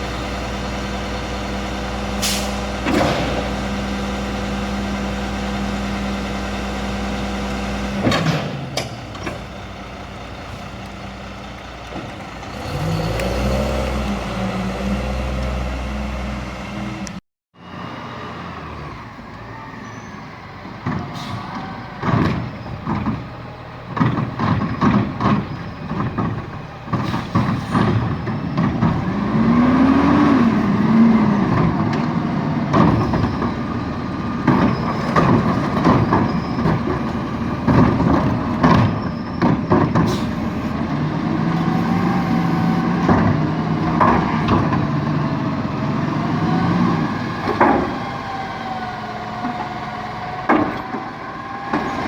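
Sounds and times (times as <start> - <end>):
garbage truck engine running: 0.0 - 52.0
clattering bangs of trash dumping: 2.0 - 5.2, 7.9 - 9.8, 20.7 - 48.4
air brake hiss: 2.2 - 2.6.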